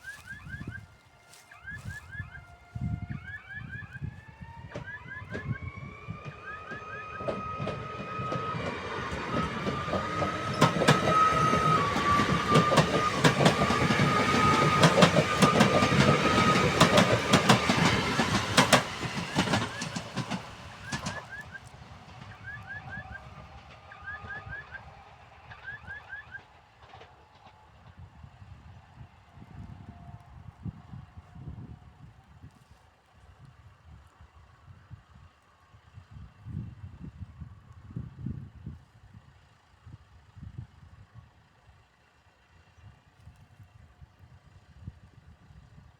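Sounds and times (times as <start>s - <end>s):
whining tone from train: 0.0s - 32.3s
train wheels clacking over rail joints: 4.7s - 28.0s.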